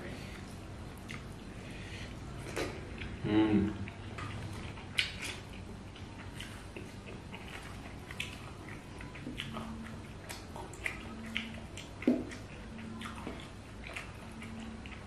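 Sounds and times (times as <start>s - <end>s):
man chewing and lip-smacking: 0.3s - 15.0s
wet mouth clicks: 1.0s - 1.3s, 3.8s - 15.0s.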